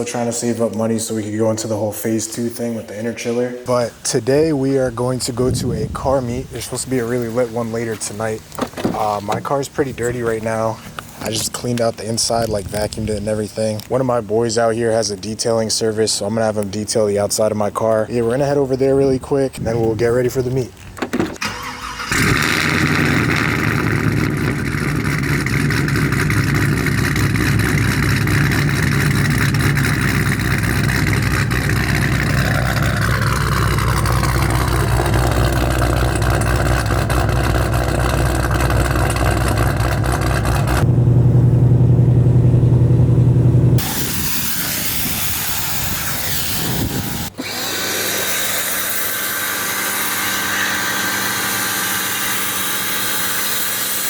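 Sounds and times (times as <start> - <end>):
car engine running: 21.2 - 45.2.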